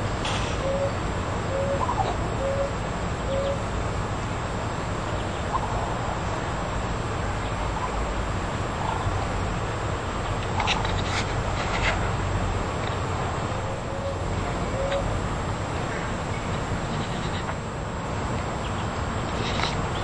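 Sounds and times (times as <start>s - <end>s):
background hiss and rumble: 0.0s - 20.0s
bird low hoots: 0.5s - 3.7s, 13.8s - 15.1s.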